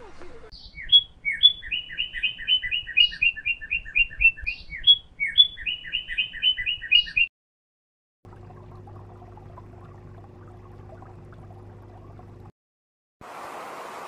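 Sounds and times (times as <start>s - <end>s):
bird singing: 0.6s - 7.3s.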